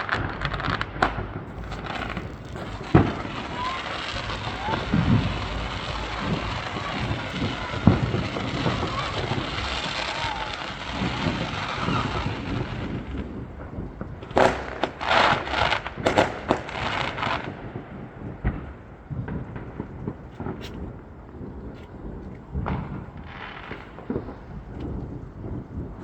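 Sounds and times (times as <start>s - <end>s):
firework bangs and crackles: 0.0s - 26.0s
firework boom: 0.1s - 16.9s.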